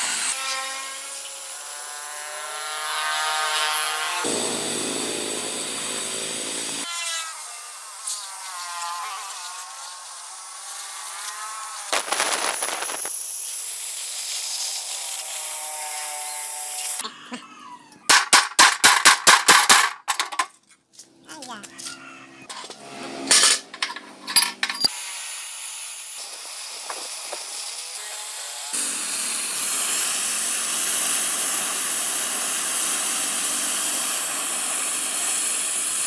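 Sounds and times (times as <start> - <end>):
gas cutting torch hissing: 11.9 - 14.9, 28.7 - 36.0.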